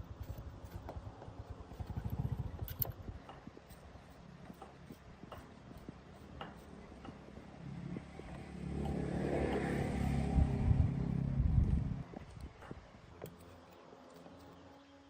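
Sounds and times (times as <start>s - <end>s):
motorcycle engine running: 7.7s - 12.3s.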